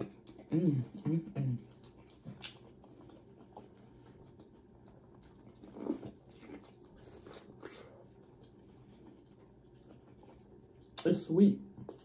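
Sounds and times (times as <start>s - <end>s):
biting and chewing corn: 1.6s - 11.1s.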